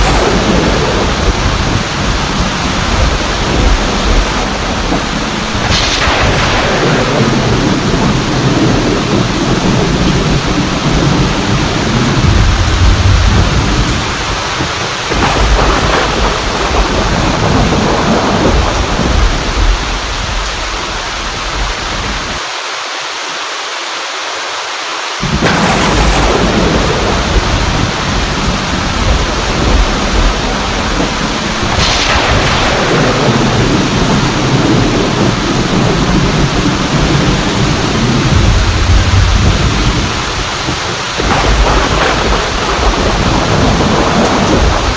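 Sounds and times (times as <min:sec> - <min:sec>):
thunderclap: 0:00.0 - 0:21.7, 0:25.2 - 0:44.9
thunder rumbling: 0:00.0 - 0:22.4, 0:25.2 - 0:44.9
heavy rain: 0:00.0 - 0:44.9.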